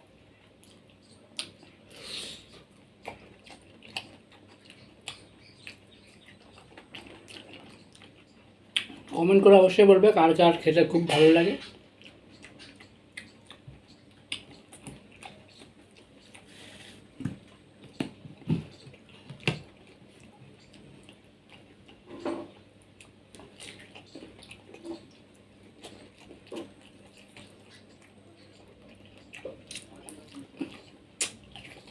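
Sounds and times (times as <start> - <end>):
wet chewing and slurping: 0.4 - 9.2, 11.6 - 31.9
mouth clicks: 29.6 - 31.5
wet smacks: 31.2 - 31.4.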